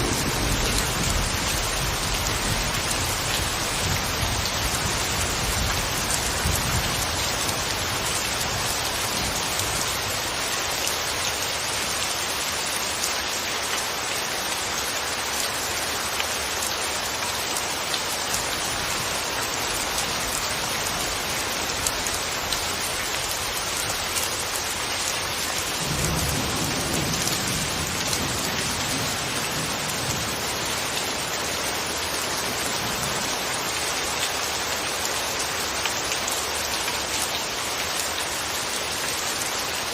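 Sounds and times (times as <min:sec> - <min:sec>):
thunder rumbling: 0:00.0 - 0:07.0
steady rain falling: 0:00.0 - 0:39.9.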